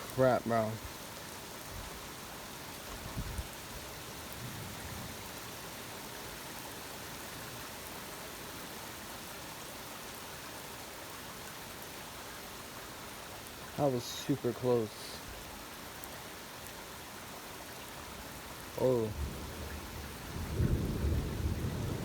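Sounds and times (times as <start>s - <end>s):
rain hiss: 0.0s - 22.0s
thunder rumbles: 19.1s - 22.0s.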